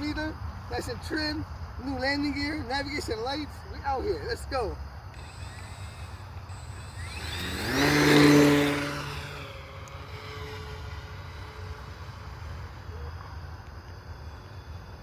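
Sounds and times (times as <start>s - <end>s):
model plane motor whine: 5.1s - 15.0s.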